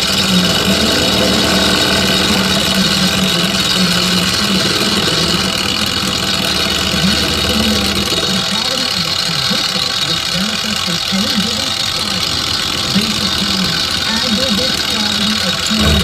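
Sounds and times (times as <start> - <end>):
metal lathe humming: 0.0 - 16.0.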